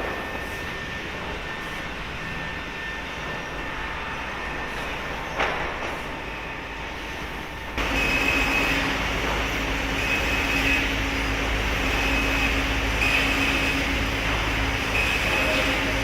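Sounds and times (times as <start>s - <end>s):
high machine whine: 0.0s - 16.0s
sawmill machinery hum: 6.2s - 16.0s.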